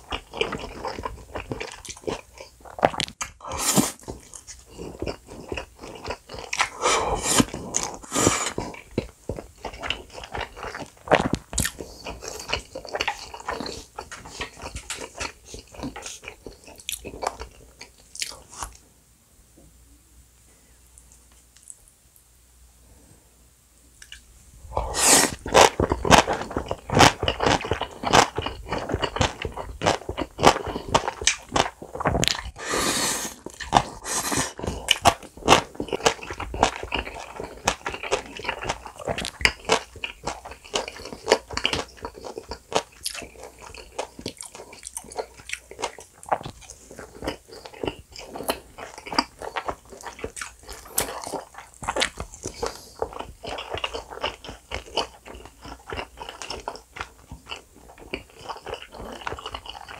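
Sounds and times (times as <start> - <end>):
crunching food: 0.0 - 18.8, 24.0 - 59.9
wet chewing and lip smacks: 33.4 - 59.9.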